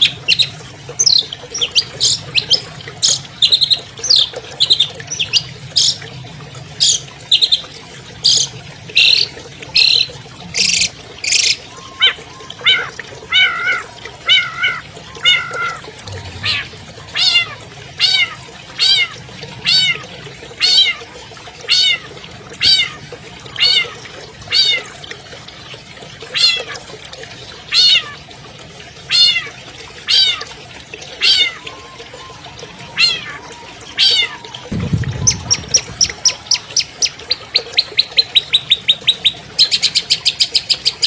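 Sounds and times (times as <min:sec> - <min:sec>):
bird mewing calls: 0:11.2 - 0:24.9, 0:31.2 - 0:37.8.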